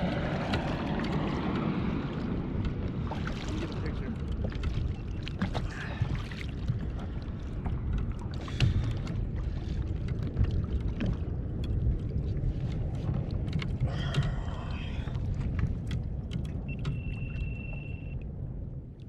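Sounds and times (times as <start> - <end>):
water sloshing: 0.0 - 18.2
small knocks and clicks: 15.5 - 17.2
steady high beep-like tone: 16.7 - 18.2.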